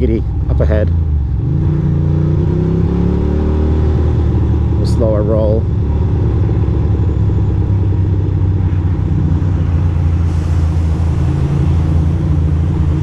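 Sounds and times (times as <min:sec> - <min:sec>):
motorcycle engine running low: 0:03.8 - 0:10.2.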